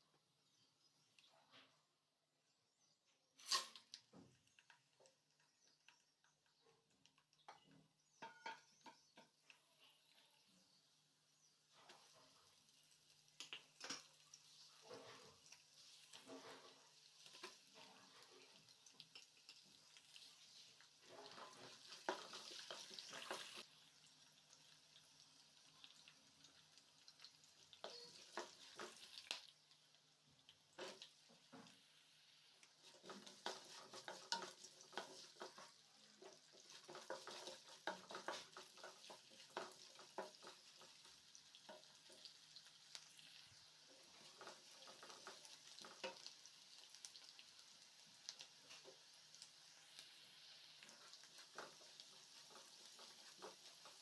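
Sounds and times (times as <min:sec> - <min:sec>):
food sizzling in oil: 0:03.4 - 0:54.0
wooden spatula scraping pan: 0:32.8 - 0:40.8.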